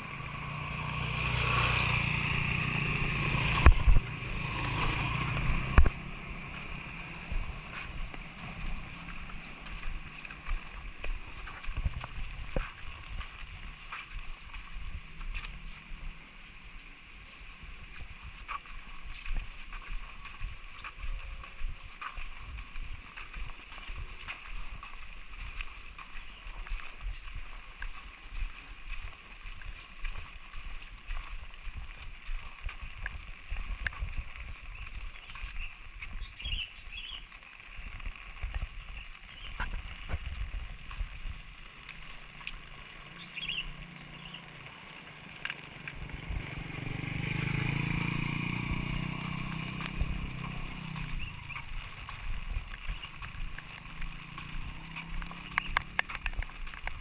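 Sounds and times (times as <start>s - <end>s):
footsteps: 2.6s - 57.0s
drops ticking: 45.4s - 57.0s.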